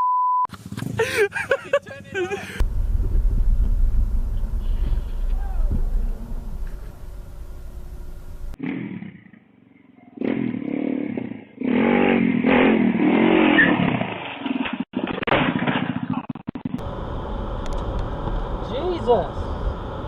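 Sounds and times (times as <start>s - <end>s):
motorcycle engine revving: 2.6s - 9.5s, 10.2s - 14.4s.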